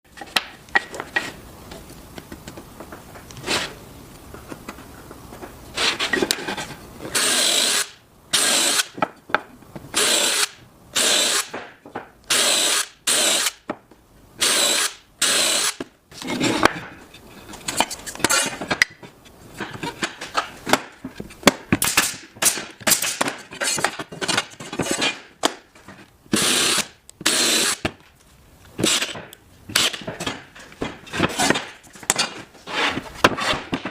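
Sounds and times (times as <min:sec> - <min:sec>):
power tools cutting wood: 0:07.1 - 0:09.0, 0:10.0 - 0:11.5, 0:12.3 - 0:13.6, 0:14.4 - 0:15.8, 0:26.4 - 0:27.8.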